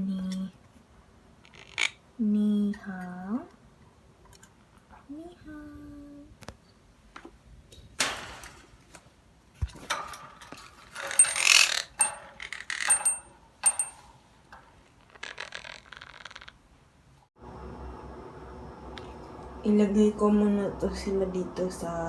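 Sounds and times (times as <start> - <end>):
bird cage clattering: 7.8 - 14.7
metallic clinks: 9.8 - 14.2.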